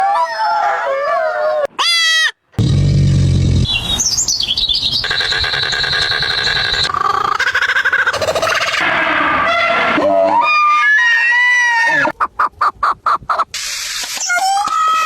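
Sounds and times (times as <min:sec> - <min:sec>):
low buzzing call: 0:02.6 - 0:06.9
high chirps: 0:03.6 - 0:06.9
rapid bird warble: 0:03.6 - 0:08.8
wavering pitched call: 0:03.7 - 0:08.8.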